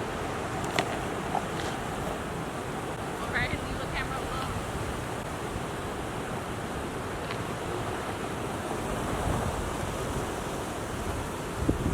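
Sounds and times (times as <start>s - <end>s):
wind buffeting microphone: 8.8s - 11.9s.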